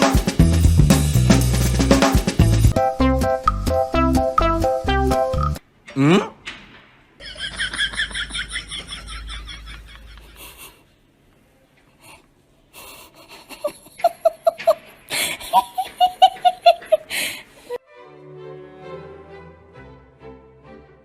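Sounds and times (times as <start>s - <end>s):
people laughing: 7.2s - 10.8s, 13.0s - 17.2s.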